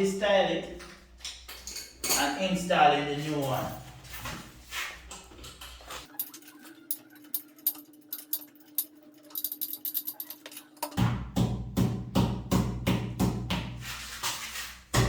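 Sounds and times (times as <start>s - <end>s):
hand tools tapping and clicking: 5.1s - 13.7s.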